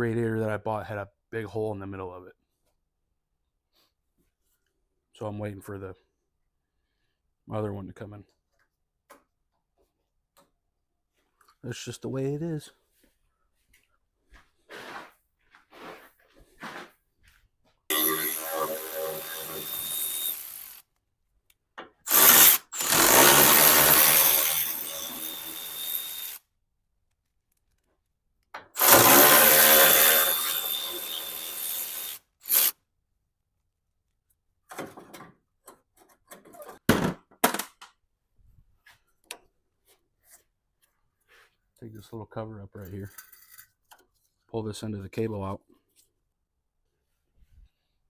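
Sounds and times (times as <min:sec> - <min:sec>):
handheld power tool running: 0:17.9 - 0:20.8, 0:22.1 - 0:26.4, 0:28.8 - 0:32.8.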